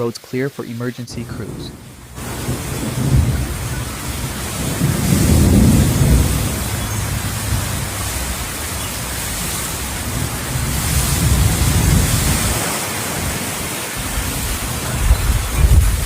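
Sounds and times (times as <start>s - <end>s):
heavy rain pouring: 0.0s - 16.0s
low rumbling: 1.1s - 12.6s, 14.0s - 16.0s.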